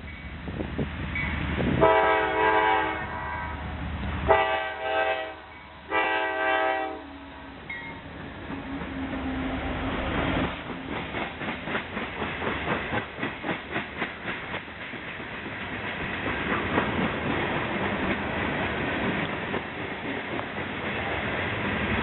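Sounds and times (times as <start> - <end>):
train rolling past: 0.0 - 22.0
locomotive horn: 1.8 - 3.6, 4.3 - 7.5
wheels clacking over rail joints: 7.6 - 22.0.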